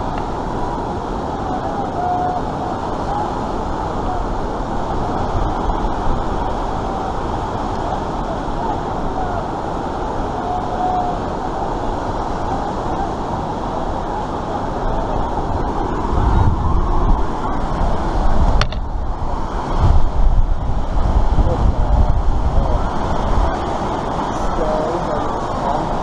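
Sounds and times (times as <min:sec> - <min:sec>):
rushing white water roar: 0:00.0 - 0:26.0.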